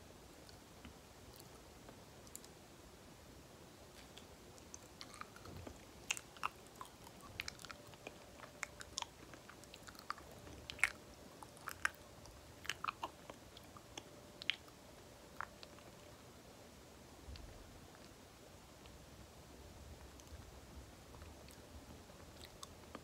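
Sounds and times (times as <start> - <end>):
chewing banana: 4.0 - 16.1, 21.2 - 23.0.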